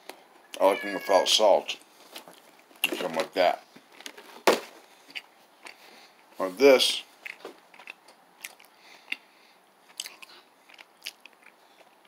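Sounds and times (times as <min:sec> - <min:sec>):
chewing granola bar crunches: 0:07.2 - 0:09.2, 0:09.9 - 0:12.0.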